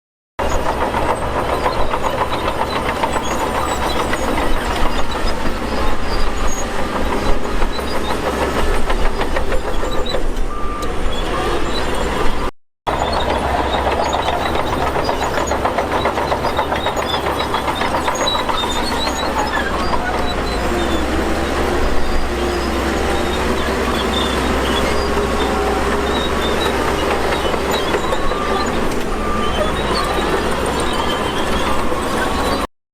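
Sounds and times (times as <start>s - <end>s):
bulldozer diesel engine under load: 0.4s - 32.7s
dense clatter: 12.9s - 31.8s.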